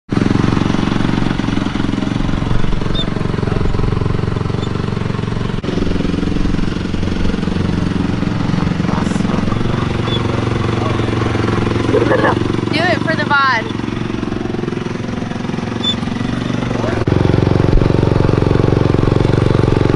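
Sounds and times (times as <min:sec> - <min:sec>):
dirt bike engine idling: 0:00.1 - 0:19.9.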